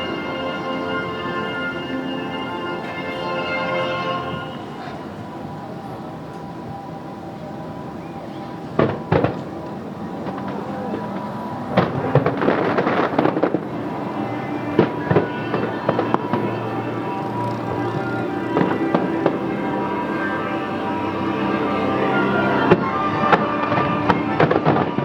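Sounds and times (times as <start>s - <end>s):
background music: 0.0s - 25.0s
fireworks bangs and pops: 8.8s - 9.6s, 10.2s - 19.4s.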